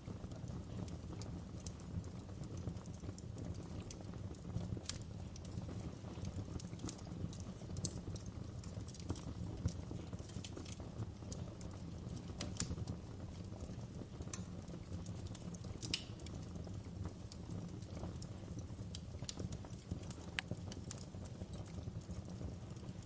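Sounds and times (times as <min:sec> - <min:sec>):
fireplace crackling: 0:00.0 - 0:23.0
wood popping and snapping: 0:15.2 - 0:16.3.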